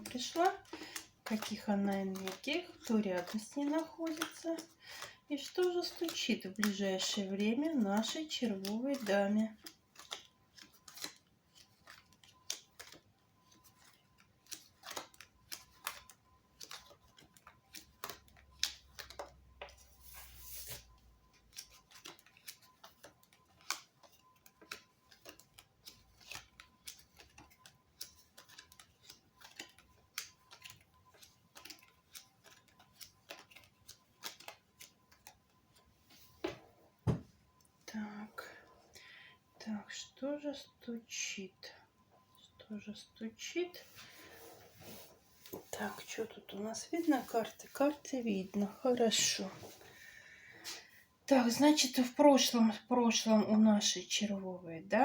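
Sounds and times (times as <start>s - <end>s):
card rustle: 0.0s - 36.6s
playing cards shuffled and dealt: 0.0s - 37.3s.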